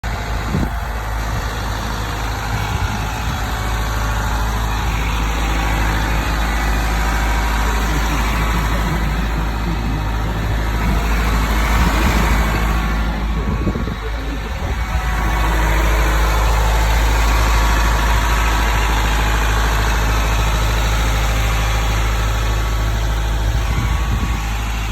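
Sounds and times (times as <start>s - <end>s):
diesel truck engine idling: 0.0s - 24.9s.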